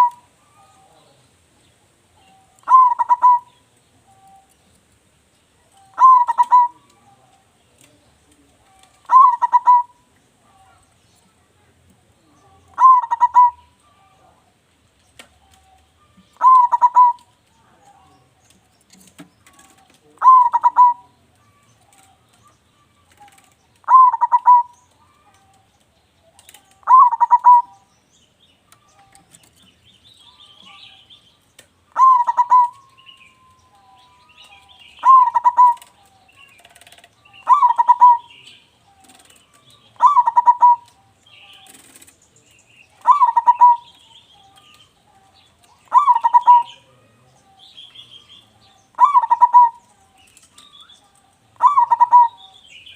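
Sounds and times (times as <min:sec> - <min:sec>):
dove cooing: 0:00.0 - 0:01.2, 0:02.2 - 0:04.6, 0:05.7 - 0:10.9, 0:12.4 - 0:14.4, 0:15.3 - 0:18.4, 0:19.4 - 0:25.6, 0:26.2 - 0:27.9, 0:31.9 - 0:42.2, 0:42.9 - 0:52.9.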